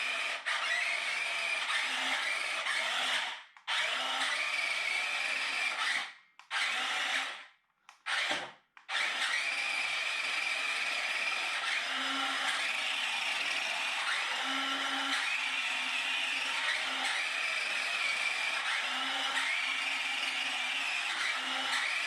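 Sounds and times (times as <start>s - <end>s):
toy vehicle motors whining: 0.0s - 22.0s.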